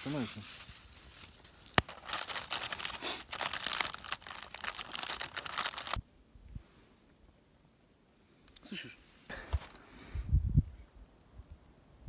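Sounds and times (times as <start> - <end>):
campfire crackling: 0.0 - 7.6.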